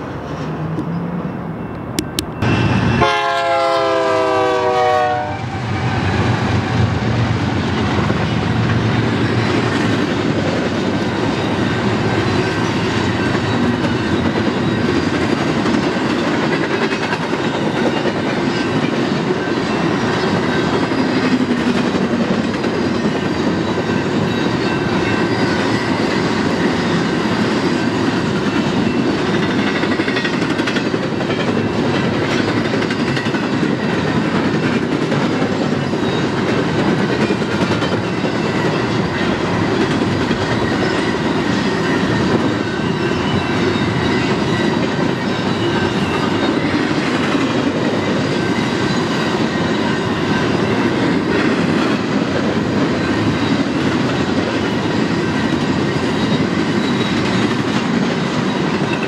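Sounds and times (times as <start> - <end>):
freight train rolling past: 0.0 - 59.0
locomotive air horn: 2.4 - 6.7
wheels clacking over rail joints: 7.2 - 59.0.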